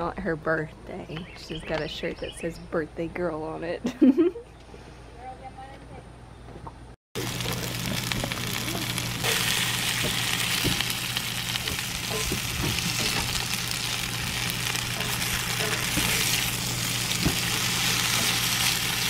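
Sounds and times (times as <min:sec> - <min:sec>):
potatoes sizzling in oil: 0:07.2 - 0:19.0.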